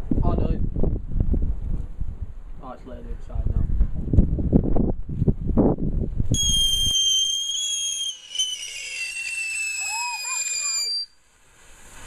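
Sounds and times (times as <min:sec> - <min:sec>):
high-pitched whistle sliding down: 0:06.4 - 0:11.2.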